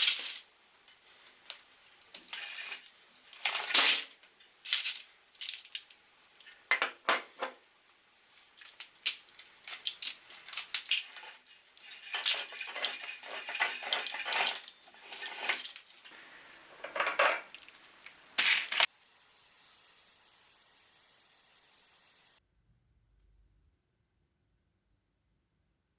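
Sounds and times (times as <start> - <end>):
matchsticks clattering on metal: 2.2 - 4.1, 8.6 - 16.0.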